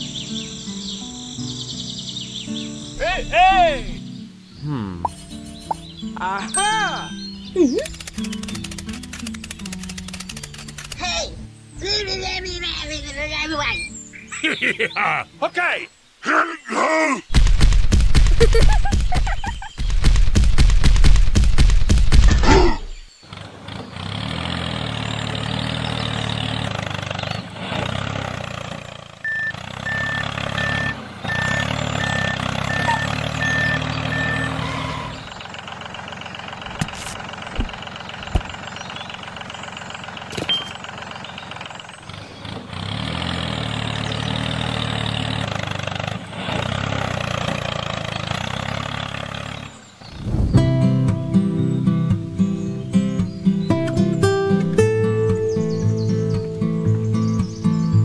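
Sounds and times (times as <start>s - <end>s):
tractor engine chugging: 23.3s - 49.9s
reversing alarm beeping: 29.2s - 35.3s, 40.5s - 40.8s.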